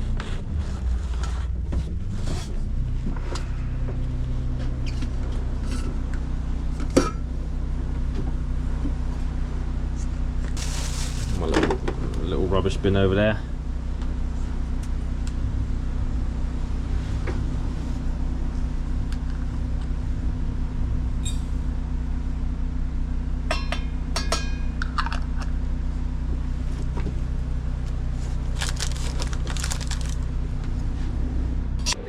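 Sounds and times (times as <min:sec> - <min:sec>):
vehicle engine humming: 0:00.0 - 0:32.0
rustling: 0:10.6 - 0:11.4, 0:28.6 - 0:30.2.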